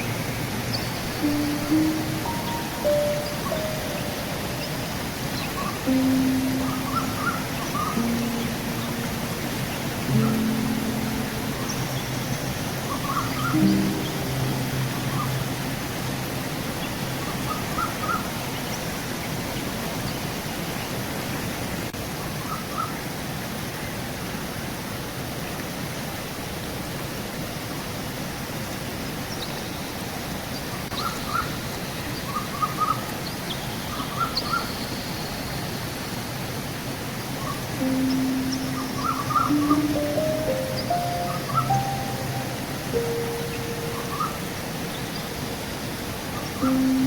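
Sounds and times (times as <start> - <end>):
birds chirping: 0.0 - 18.9, 37.4 - 47.0
river water rushing: 0.0 - 22.5, 35.9 - 47.0.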